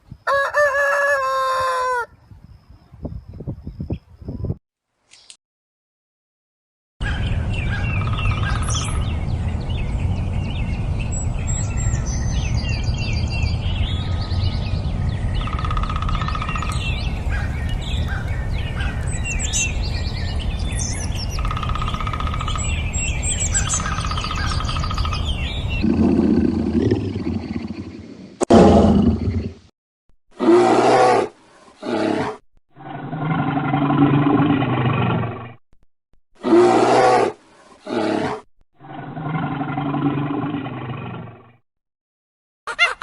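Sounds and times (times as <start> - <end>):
songbirds chirping and whistling: 0.0 - 5.4, 7.0 - 26.1.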